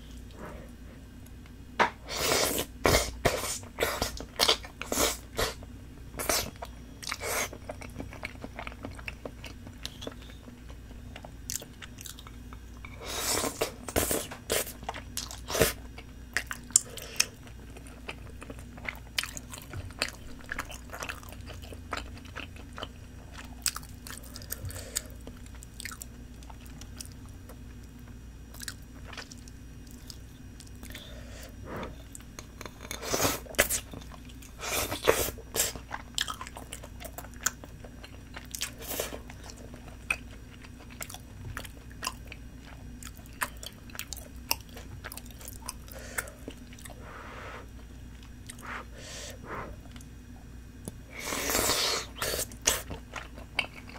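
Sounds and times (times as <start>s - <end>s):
faint low hum: 0.0s - 53.9s
chewing and mouth smacks: 14.8s - 31.0s, 35.5s - 47.0s.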